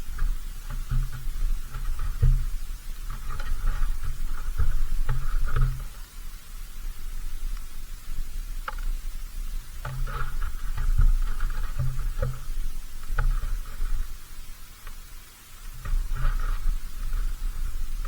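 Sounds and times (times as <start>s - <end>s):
ticks and scratches of seed: 0.0s - 6.1s, 9.8s - 18.0s.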